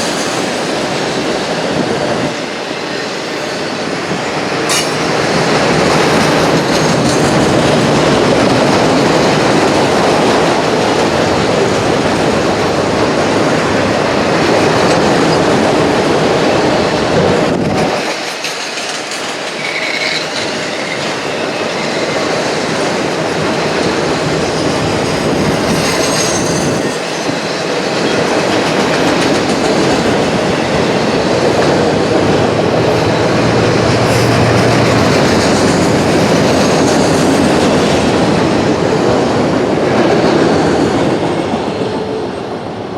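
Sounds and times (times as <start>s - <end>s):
train wheels rumbling with rail clatter: 0.0s - 42.9s.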